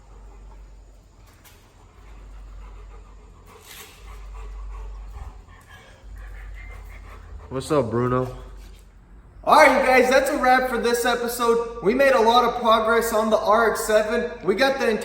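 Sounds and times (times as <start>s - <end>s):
dog making small sounds: 0.0s - 8.8s
steady low rumble: 0.0s - 10.9s.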